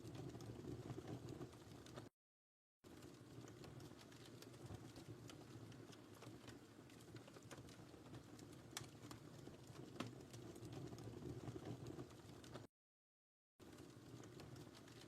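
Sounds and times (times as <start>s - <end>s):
fire crackling and popping: 0.0s - 2.1s, 2.8s - 12.7s, 13.6s - 15.0s
low rumble of flames: 0.0s - 2.1s, 2.9s - 12.7s, 13.6s - 15.0s.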